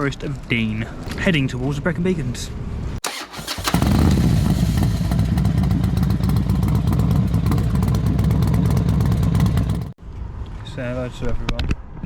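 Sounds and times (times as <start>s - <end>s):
motorcycle engine idling: 3.1s - 10.0s.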